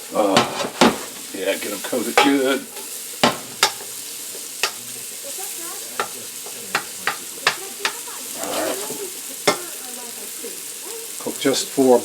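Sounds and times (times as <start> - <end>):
mushrooms sizzling in a pan: 0.0 - 12.0
utensil knocking against pan: 0.3 - 4.8, 6.0 - 8.1, 9.4 - 9.7.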